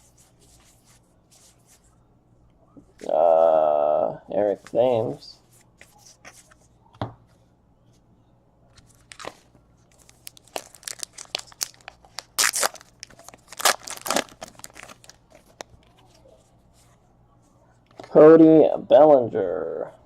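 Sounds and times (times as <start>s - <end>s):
foil wrapper tearing and crinkling: 9.0s - 15.7s.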